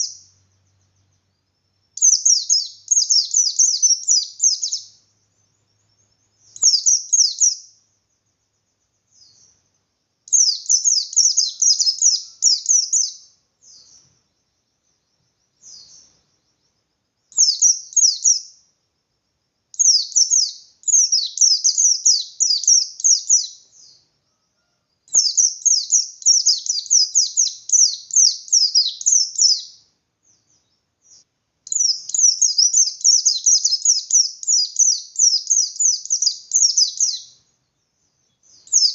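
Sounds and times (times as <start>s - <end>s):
bird twittering song: 0.0s - 18.8s, 19.6s - 38.9s.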